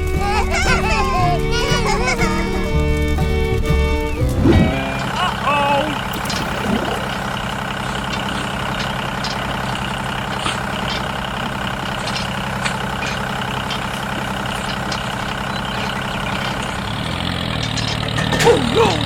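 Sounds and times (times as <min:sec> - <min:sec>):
tractor motor running: 0:06.0 - 0:18.2.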